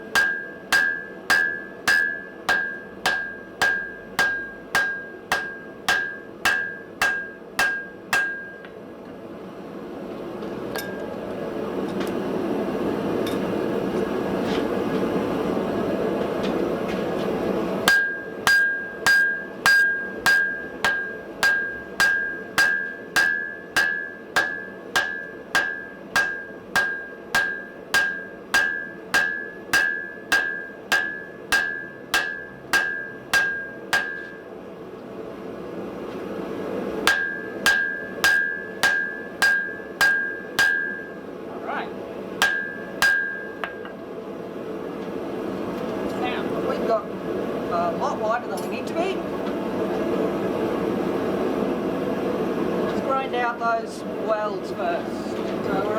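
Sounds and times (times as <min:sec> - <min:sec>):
hammer striking metal on anvil: 0:00.0 - 0:08.8, 0:10.7 - 0:11.1, 0:17.8 - 0:34.5, 0:37.0 - 0:41.2, 0:42.4 - 0:44.0.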